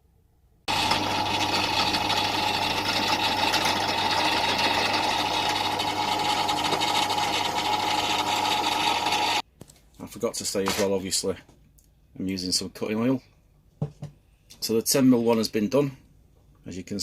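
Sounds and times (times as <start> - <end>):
drill bit cutting steel: 0.7 - 9.4
pillar drill motor hum: 0.7 - 9.4.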